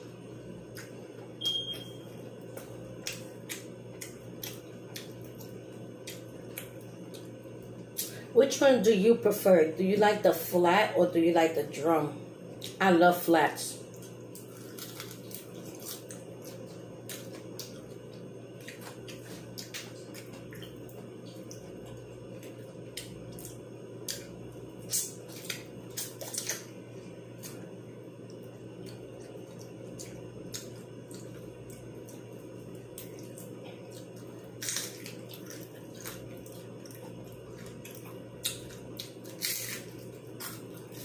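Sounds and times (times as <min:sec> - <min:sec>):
chewing and lip-smacking: 0:00.6 - 0:08.1, 0:13.8 - 0:41.0.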